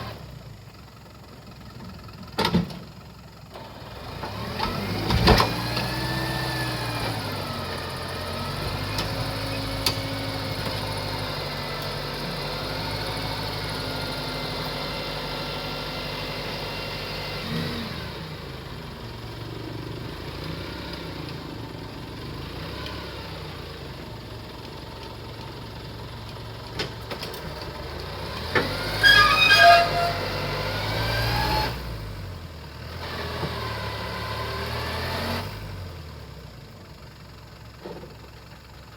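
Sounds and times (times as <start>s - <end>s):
truck engine revving: 3.9s - 23.7s, 27.8s - 36.0s.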